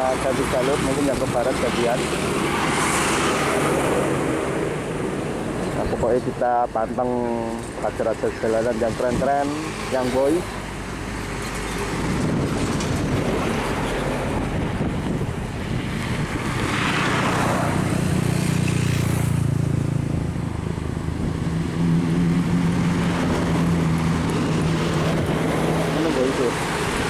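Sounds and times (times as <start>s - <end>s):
passing vehicles: 0.0s - 27.0s
truck engines in traffic: 0.0s - 27.0s
wind buffeting microphone: 11.0s - 27.0s.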